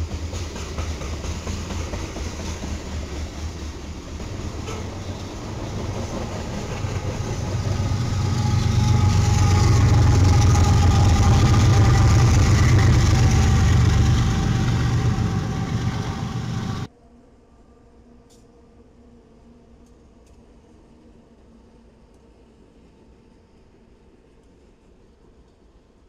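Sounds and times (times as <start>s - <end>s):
diesel locomotive hum and whine: 0.0s - 16.9s
freight train passing: 0.0s - 16.9s.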